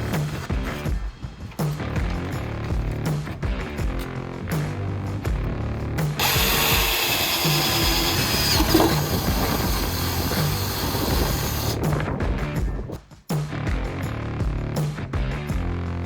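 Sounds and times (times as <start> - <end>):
music with steady beat: 0.0 - 16.0
power drill boring into metal: 6.2 - 11.8.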